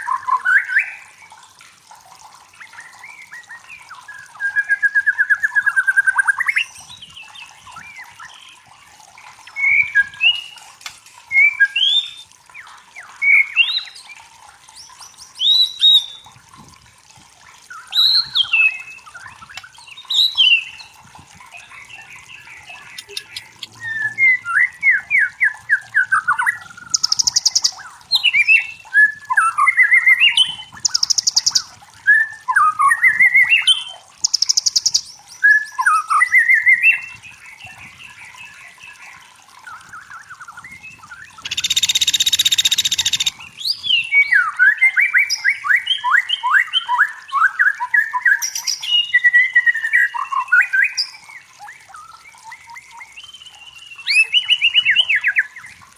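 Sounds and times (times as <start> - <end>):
bird singing whistled phrases: 22.4 - 38.4, 39.8 - 55.6.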